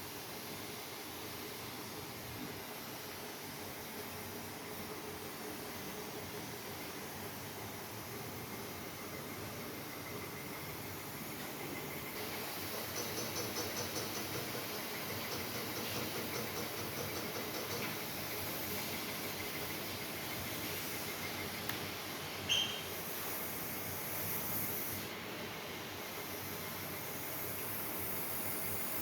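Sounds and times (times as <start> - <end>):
steady hiss: 0.0 - 29.0
small click: 21.6 - 21.8
short high chirp: 22.5 - 22.9.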